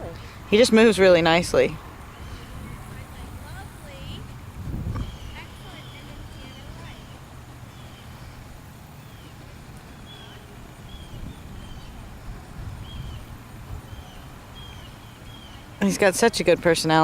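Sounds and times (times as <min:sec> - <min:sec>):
low outdoor rumble: 0:00.0 - 0:17.0
bird chirping: 0:01.8 - 0:15.9.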